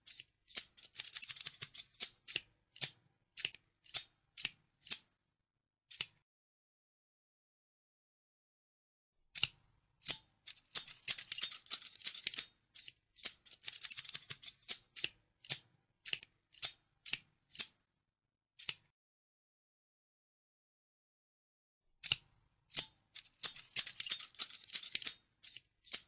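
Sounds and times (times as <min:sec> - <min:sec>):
scissors snipping: 0:00.0 - 0:05.0, 0:05.9 - 0:06.2, 0:09.3 - 0:17.8, 0:18.6 - 0:18.9, 0:22.0 - 0:26.0.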